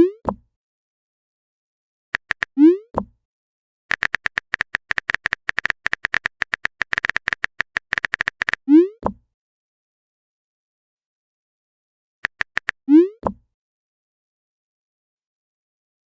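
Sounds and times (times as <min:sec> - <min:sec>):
phone keyboard typing clicks: 0:02.2 - 0:02.5, 0:03.9 - 0:08.6, 0:12.2 - 0:12.8
app clicks: 0:02.2 - 0:03.1, 0:03.9 - 0:09.2, 0:12.2 - 0:13.4.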